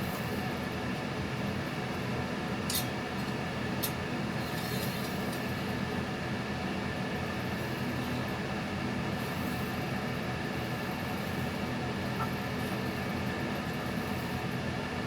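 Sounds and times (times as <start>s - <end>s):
steady mechanical hum: 0.0s - 15.0s
metallic clicks of bike tools: 2.7s - 2.9s.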